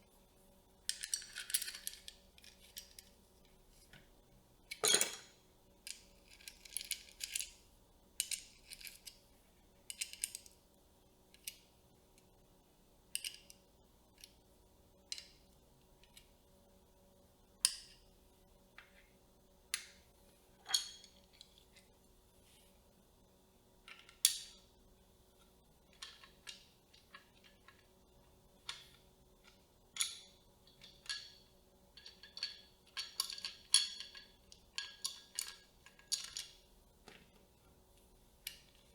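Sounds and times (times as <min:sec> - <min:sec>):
faint steady hum: 0:00.0 - 0:38.9
light metallic clinks: 0:04.7 - 0:05.3.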